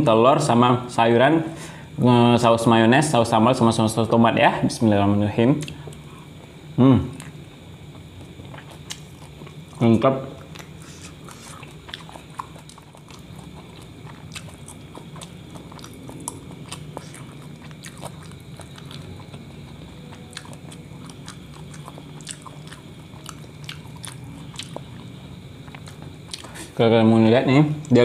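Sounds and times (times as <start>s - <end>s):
chewing food: 7.1s - 26.7s.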